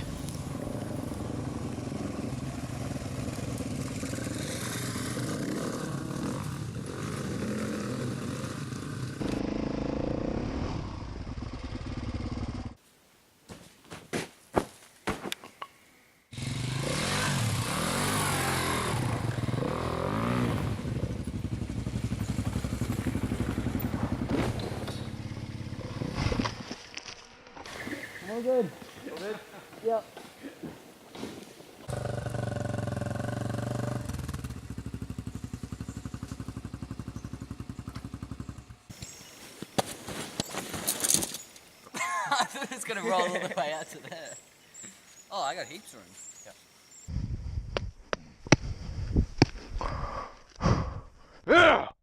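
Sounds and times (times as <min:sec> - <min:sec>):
motorbike engine revving: 0:00.0 - 0:12.8, 0:16.3 - 0:26.7, 0:31.9 - 0:38.9.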